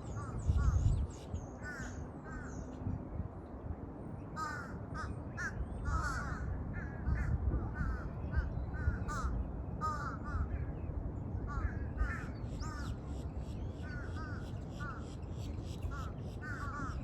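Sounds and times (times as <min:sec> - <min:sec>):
crows cawing: 0:04.4 - 0:10.5, 0:13.9 - 0:15.1, 0:15.9 - 0:17.0.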